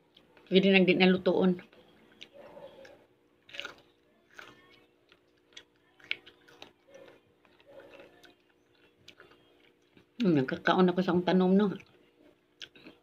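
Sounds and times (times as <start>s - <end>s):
faint steady hum: 0.0s - 13.0s
person chewing crunchy vegetable: 2.1s - 10.2s, 11.7s - 13.0s.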